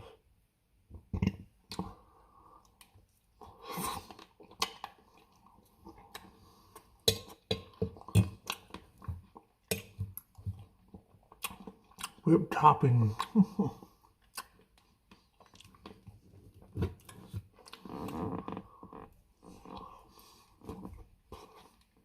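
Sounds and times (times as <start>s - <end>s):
person chewing: 1.2s - 12.2s, 13.1s - 22.0s
wet mouth smacks and clicks: 4.6s - 5.0s.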